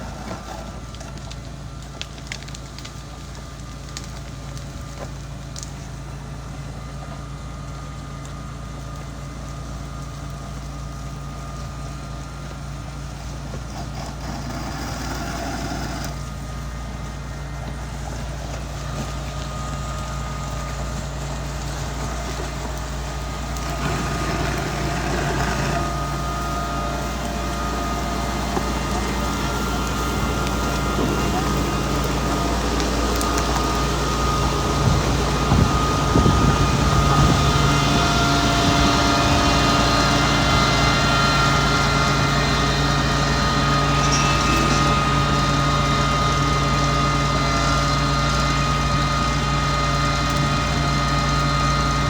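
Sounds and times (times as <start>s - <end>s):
grader diesel engine running: 0.0s - 52.0s.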